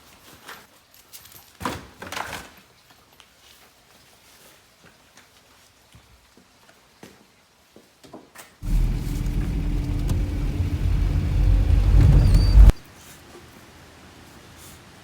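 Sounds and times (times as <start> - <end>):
car engine rumbling: 8.6 - 12.8.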